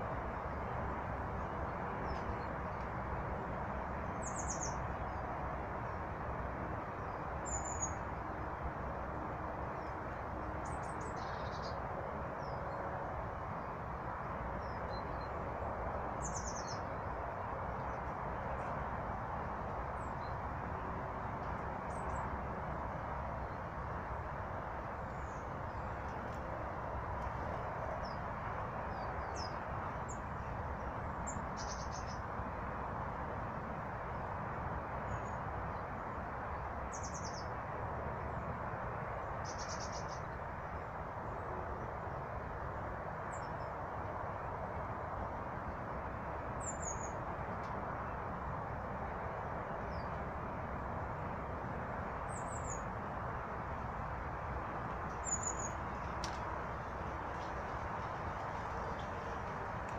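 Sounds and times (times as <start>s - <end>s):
steady rushing noise: 0.0s - 59.9s
small birds chirping: 4.1s - 5.1s, 10.6s - 11.8s, 16.2s - 17.1s, 28.9s - 32.2s, 36.9s - 37.5s, 39.3s - 40.4s, 52.3s - 52.9s, 55.1s - 59.9s.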